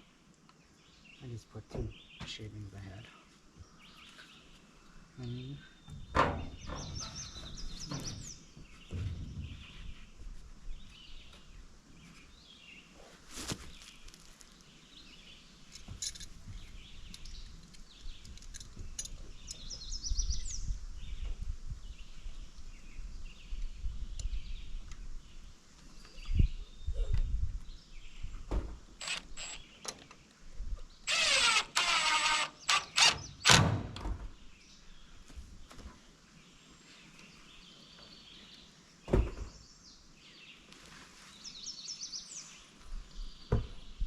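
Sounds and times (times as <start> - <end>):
small birds chirping: 0.0 - 33.6, 34.2 - 44.0
low rumbling handling noise: 5.8 - 12.1.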